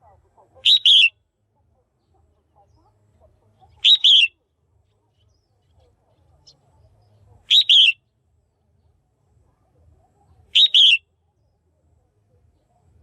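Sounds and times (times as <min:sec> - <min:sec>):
bird two-part chirp: 0:00.6 - 0:01.1, 0:03.8 - 0:04.3, 0:07.5 - 0:08.0, 0:10.6 - 0:11.0.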